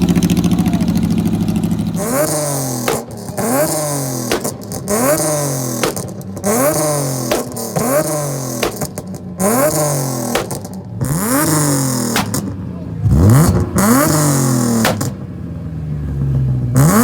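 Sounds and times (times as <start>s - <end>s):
car engine revving: 0.0s - 17.0s
exhaust pops: 0.0s - 17.0s.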